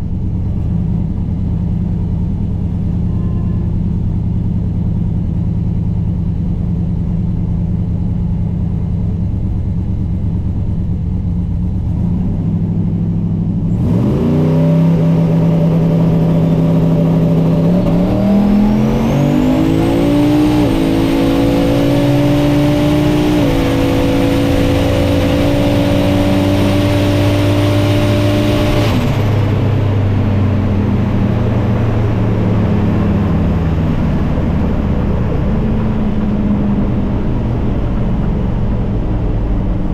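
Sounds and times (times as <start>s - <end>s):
turbo whine: 2.6s - 5.2s
truck engine revving: 13.7s - 39.9s.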